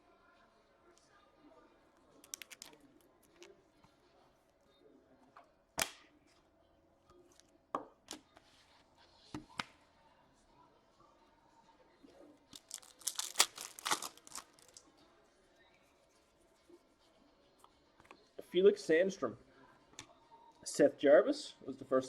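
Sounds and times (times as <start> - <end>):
foil tearing and crinkling: 12.6 - 14.8
foil wrapper crackling: 12.6 - 14.8.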